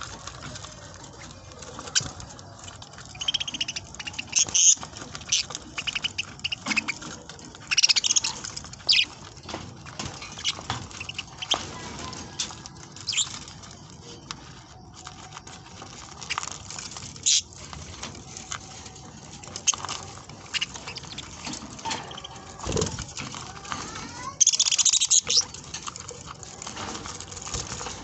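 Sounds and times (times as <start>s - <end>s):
scratchy patter: 0.0s - 28.0s
budgerigars chirping: 3.1s - 11.7s, 12.4s - 13.5s, 17.1s - 17.6s, 19.5s - 22.9s, 24.4s - 25.7s.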